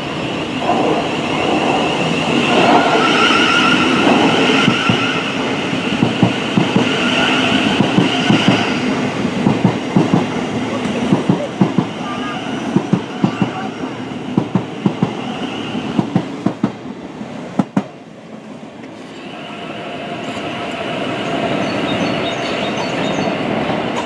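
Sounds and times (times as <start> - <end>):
train whine: 0.0 - 24.0
train wheels clattering over rail joints: 5.9 - 8.7.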